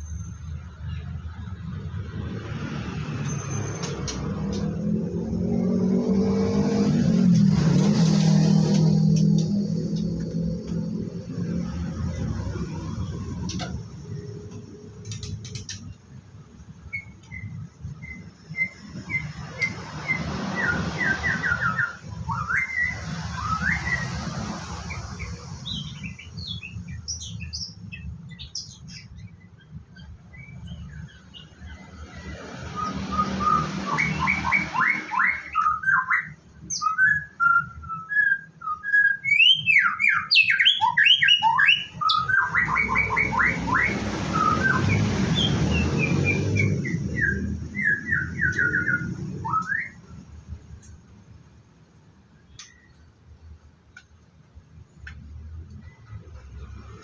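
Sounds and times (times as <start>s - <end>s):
rushing noise: 1.6s - 15.9s, 17.5s - 26.1s, 42.5s - 49.5s
bird singing whistles and trills: 16.8s - 24.2s, 24.9s - 31.8s, 32.7s - 50.9s.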